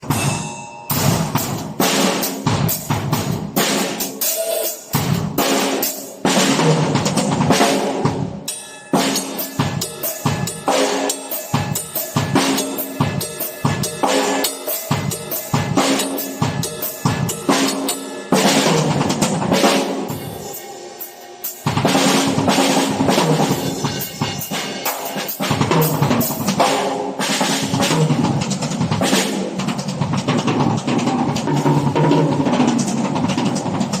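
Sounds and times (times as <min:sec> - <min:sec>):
drum kit played fast: 0:00.0 - 0:34.0.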